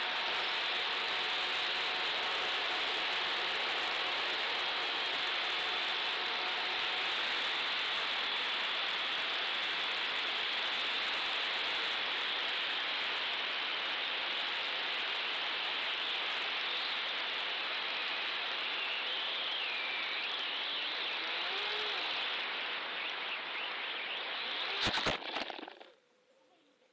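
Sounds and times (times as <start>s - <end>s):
model airplane airflow and motor: 0.0s - 11.5s.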